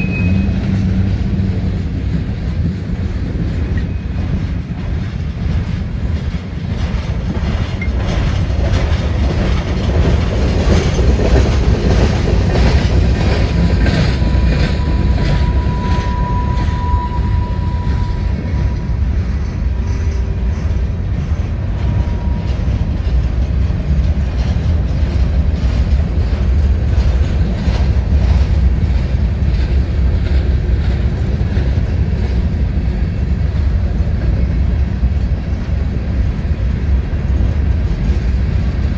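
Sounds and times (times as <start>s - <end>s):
high wheel squeal: 0.0s - 1.1s, 12.7s - 23.2s
freight train rumbling past: 0.0s - 38.9s
wheels clicking over rail joints: 0.0s - 38.9s.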